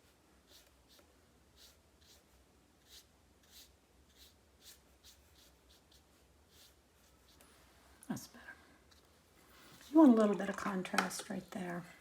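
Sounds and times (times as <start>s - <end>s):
brush stroking across paper: 0.0s - 7.8s, 8.9s - 10.6s.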